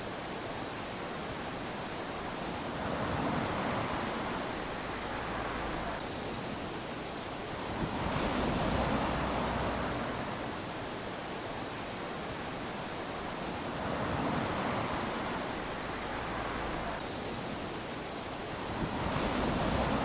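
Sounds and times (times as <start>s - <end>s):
small waves lapping on sand: 0.0s - 20.0s.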